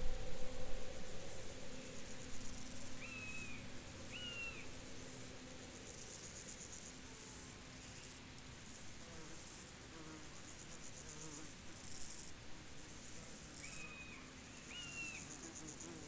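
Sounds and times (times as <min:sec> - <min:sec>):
low rumble: 0:00.0 - 0:06.0
insects chirring: 0:00.0 - 0:08.8
whistled bird calls: 0:03.0 - 0:04.7, 0:13.6 - 0:15.2.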